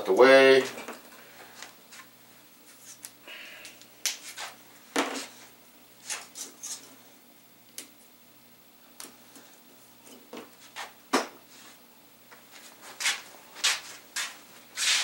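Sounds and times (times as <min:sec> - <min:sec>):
hissy rubbing scrapes: 0:04.2 - 0:04.6, 0:12.6 - 0:15.0.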